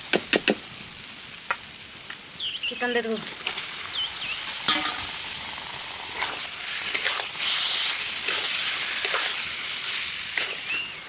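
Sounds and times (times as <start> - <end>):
chicken sizzling in hot oil: 0.0 - 11.0
steel spatula scraping pan: 6.2 - 10.9.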